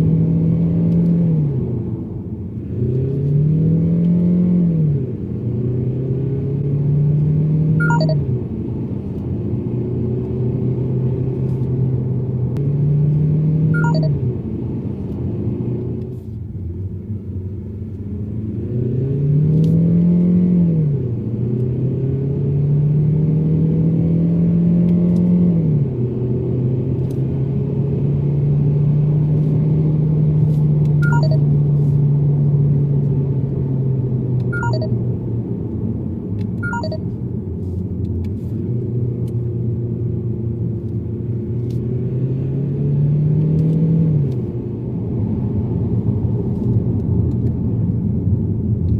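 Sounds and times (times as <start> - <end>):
car engine revving: 18.3 - 34.9.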